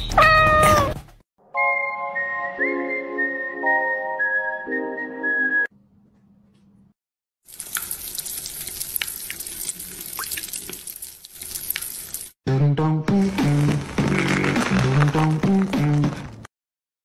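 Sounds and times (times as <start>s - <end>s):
music cue: 1.4s - 5.7s
food sizzling in a pan: 7.5s - 12.4s.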